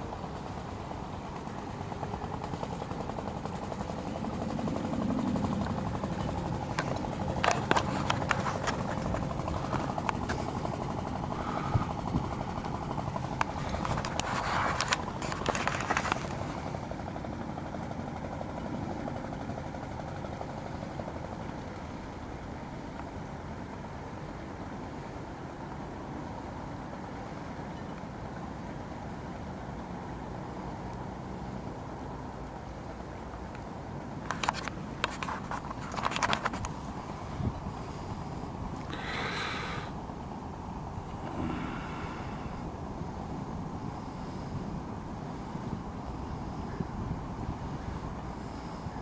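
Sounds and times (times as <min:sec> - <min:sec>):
boat engine running: 0:00.0 - 0:21.6, 0:34.3 - 0:49.0.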